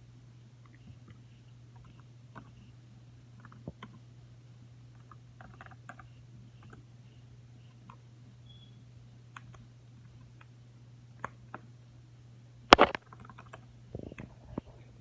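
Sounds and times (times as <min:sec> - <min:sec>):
low steady hum: 0:00.0 - 0:15.0
keyboard and mouse clicks: 0:09.4 - 0:09.6, 0:12.7 - 0:14.3.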